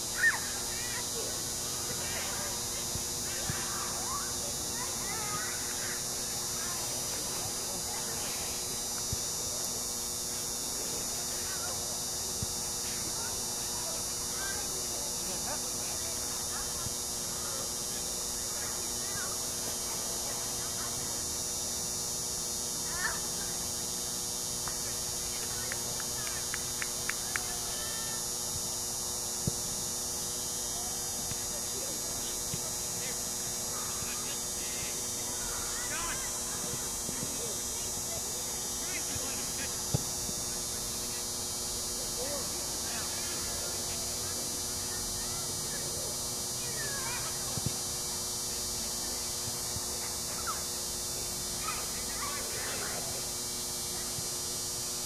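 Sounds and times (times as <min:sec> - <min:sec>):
steady hiss and hum: 0:00.0 - 0:55.0
distant shouts: 0:33.6 - 0:37.1.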